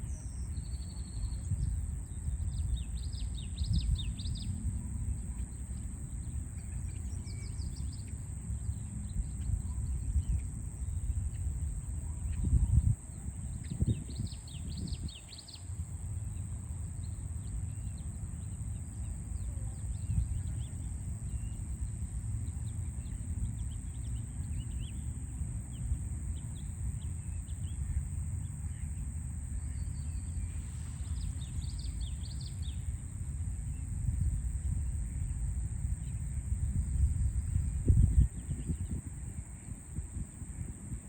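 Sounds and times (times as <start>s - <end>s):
songbirds chirping: 0.0s - 34.0s
steady high hiss: 24.8s - 38.0s.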